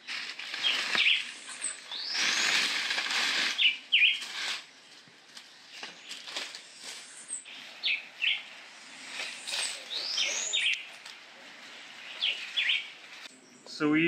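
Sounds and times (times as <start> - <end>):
birds chirping: 0.0 - 14.0
bird whistle rising and falling: 3.5 - 4.2, 9.4 - 10.9.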